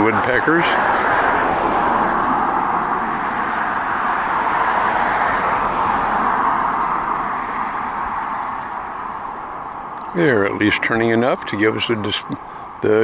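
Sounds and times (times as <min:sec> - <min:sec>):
road traffic rushing: 0:00.0 - 0:13.0.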